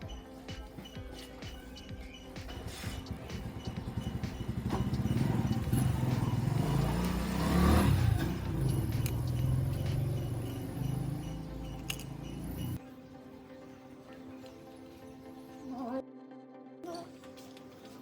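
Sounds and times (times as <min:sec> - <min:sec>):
motorcycle engine revving: 0:02.5 - 0:12.8.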